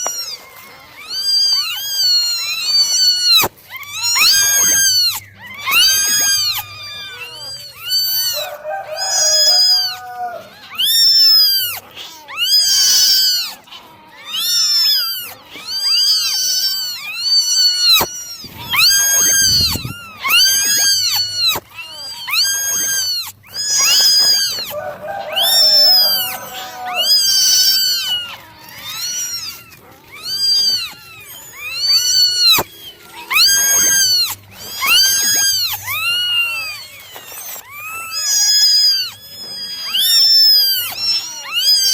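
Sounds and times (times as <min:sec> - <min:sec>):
kittens meowing: 0:00.0 - 0:41.9.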